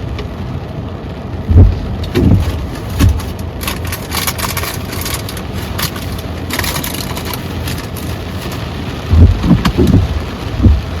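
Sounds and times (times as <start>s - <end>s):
rain falling on a car: 0.0s - 11.0s
heavy low thumps: 1.4s - 3.2s, 9.1s - 11.0s.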